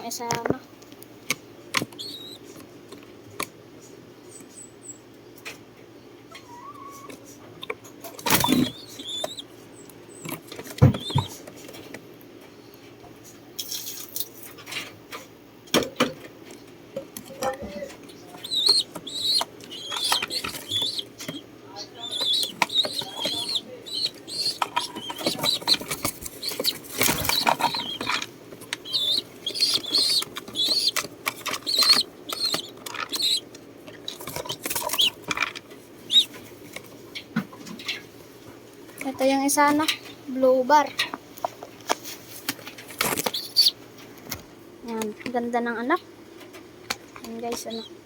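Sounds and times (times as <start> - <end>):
young pigeons squeaking: 1.8 - 2.6, 6.3 - 7.4, 8.0 - 11.8, 17.3 - 38.1, 42.8 - 43.8, 47.3 - 48.0
high chirp: 2.0 - 2.4, 8.5 - 9.4, 18.4 - 21.4, 22.0 - 28.2, 28.8 - 31.0, 31.6 - 33.4, 36.1 - 36.3
knocks and rustles of nest box: 10.6 - 11.6, 22.0 - 33.4.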